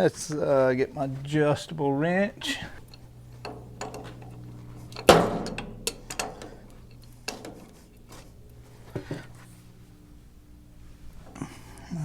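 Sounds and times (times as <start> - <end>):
metal wrench clanks and clicks: 2.4 - 9.4
light knocks: 2.7 - 9.8.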